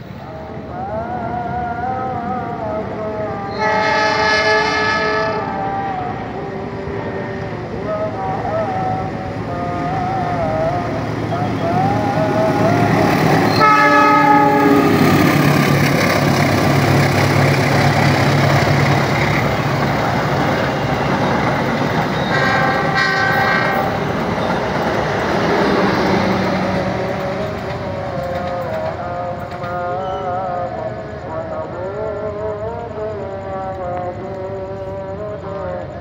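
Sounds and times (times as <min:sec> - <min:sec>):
diesel locomotive engine: 0:00.0 - 0:36.0
train wheel rumble and clatter: 0:00.0 - 0:36.0
train horn blasts: 0:03.5 - 0:05.7, 0:13.4 - 0:15.2, 0:22.2 - 0:24.0.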